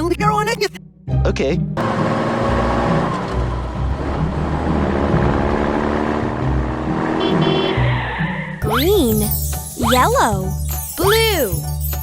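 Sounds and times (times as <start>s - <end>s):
car engine revving: 1.8s - 8.6s.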